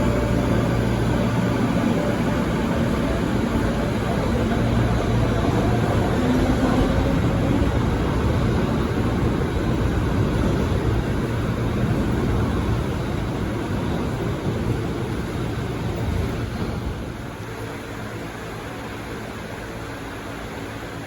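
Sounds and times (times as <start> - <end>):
train rumble and hiss: 0.0 - 21.0.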